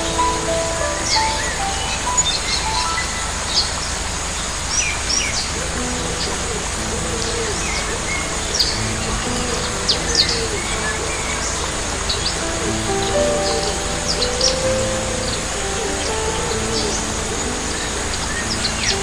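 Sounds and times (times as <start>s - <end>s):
held music notes: 0.0s - 4.3s, 5.2s - 19.0s
birds chirping: 0.0s - 19.0s
steady hiss: 0.0s - 19.0s.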